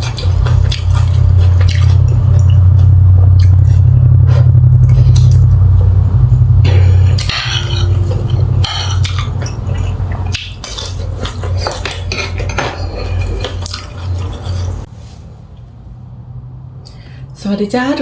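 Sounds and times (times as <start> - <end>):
steady low hum: 0.0 - 18.0
cutlery and dishes clinking: 10.6 - 14.7.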